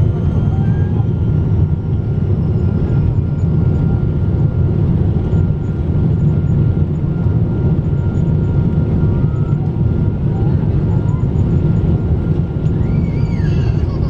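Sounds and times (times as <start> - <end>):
jet airliner cabin rumble: 0.0 - 14.0.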